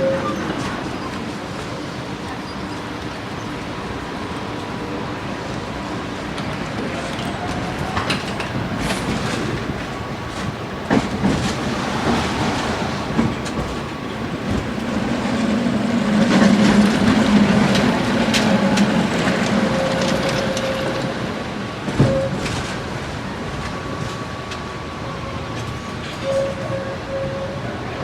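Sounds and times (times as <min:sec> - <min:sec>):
tram rumbling on rails: 0:00.0 - 0:28.0
wheels knocking: 0:08.0 - 0:20.7.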